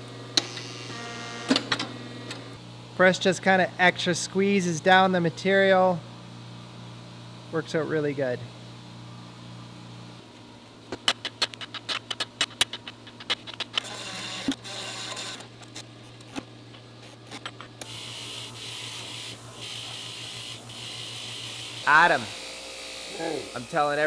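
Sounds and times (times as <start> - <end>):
wire wheel spinning with hiss: 17.8 - 22.4, 23.1 - 24.0.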